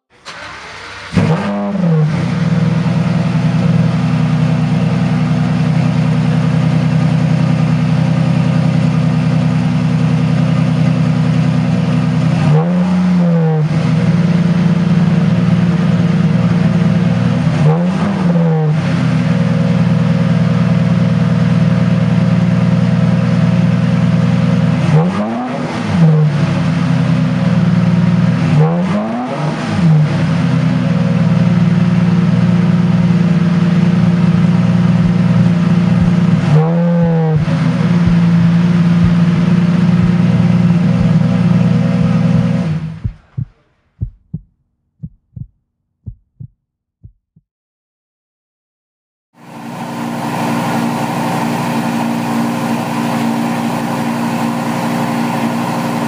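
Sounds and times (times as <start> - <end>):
car engine starting and idling: 0.0 - 25.0, 25.7 - 43.8
engine revving blips: 0.2 - 2.6, 12.3 - 14.6, 17.6 - 19.0, 32.7 - 44.3.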